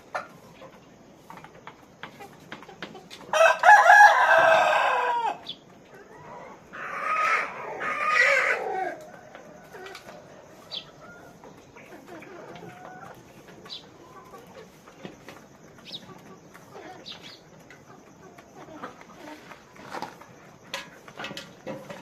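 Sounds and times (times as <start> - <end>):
chicken calls: 0.0 - 22.0
rooster crowing: 3.3 - 5.4, 6.3 - 11.4.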